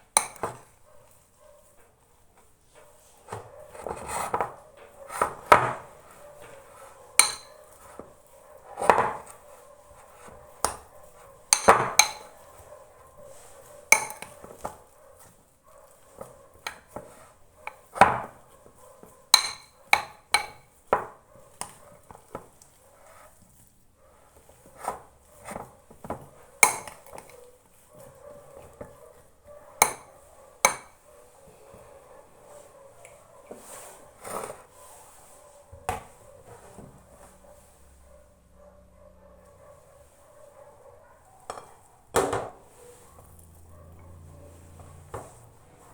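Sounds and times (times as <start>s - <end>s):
utensils knocking against a bowl: 7.2s - 7.6s, 11.5s - 12.4s, 19.4s - 21.1s.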